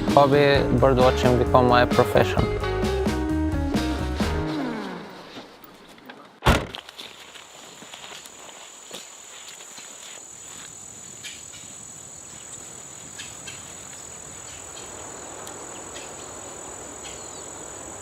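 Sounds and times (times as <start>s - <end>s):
steady outdoor hiss: 0.0s - 4.2s, 6.4s - 18.0s
cricket high-pitched trill: 10.3s - 18.0s.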